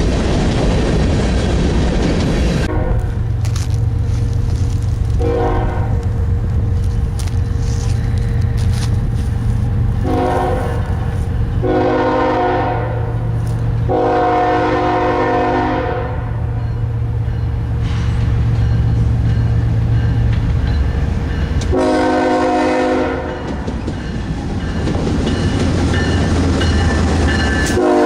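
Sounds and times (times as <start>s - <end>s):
train rumbling: 0.0s - 28.0s
locomotive air horn blasts: 2.7s - 3.2s, 5.2s - 6.1s, 10.0s - 11.0s, 11.6s - 13.2s, 13.9s - 16.4s, 21.7s - 23.4s, 27.7s - 28.0s.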